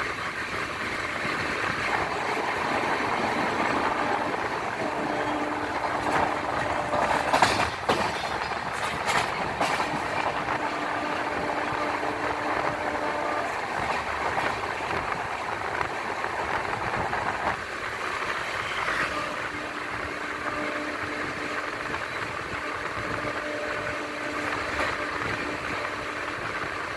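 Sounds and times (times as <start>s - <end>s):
train wheels rumbling and clattering: 0.0s - 26.9s
sharp clacks: 5.9s - 10.6s.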